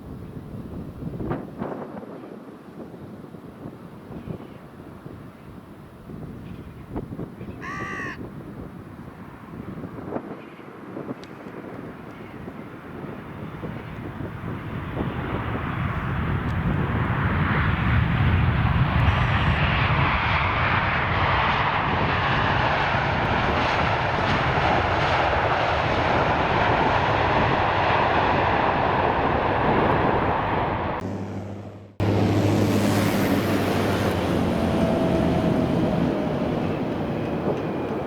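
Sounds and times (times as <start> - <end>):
jet engines rushing: 10.7 - 38.0.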